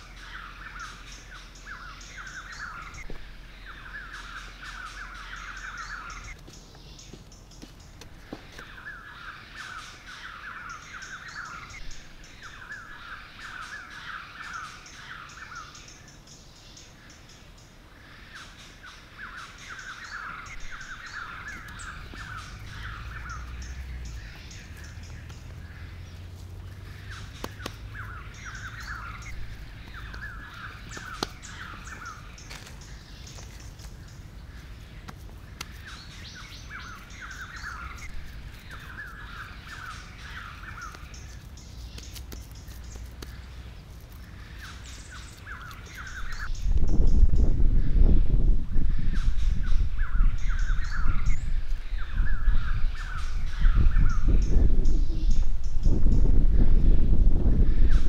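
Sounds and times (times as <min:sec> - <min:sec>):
birds calling rapid notes: 0:00.0 - 0:48.1, 0:48.9 - 0:56.7
low rumble: 0:46.2 - 0:58.0.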